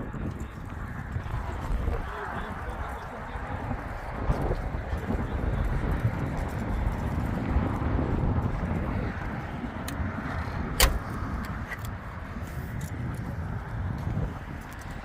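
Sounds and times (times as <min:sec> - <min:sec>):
sharp click: 0:10.8 - 0:11.9.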